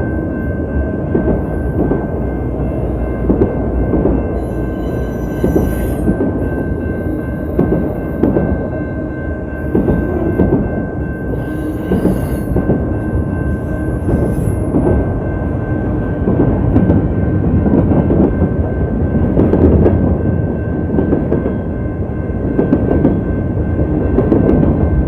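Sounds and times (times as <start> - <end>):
freight train rumbling: 0.0 - 25.0
train wheels clattering: 1.1 - 8.9, 9.6 - 18.6.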